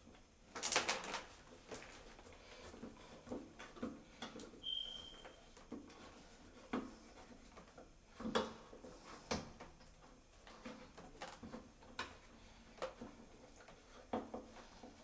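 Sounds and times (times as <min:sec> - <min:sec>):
brief high squeak: 0:04.6 - 0:05.4.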